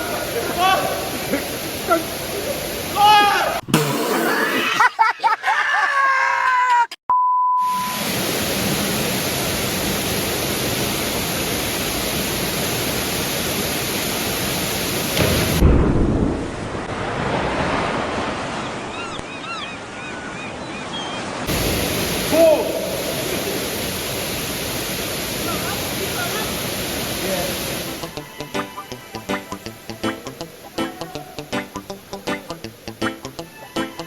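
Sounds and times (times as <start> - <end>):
waterfall roaring: 0.0 - 3.6, 7.9 - 15.6, 21.5 - 34.0.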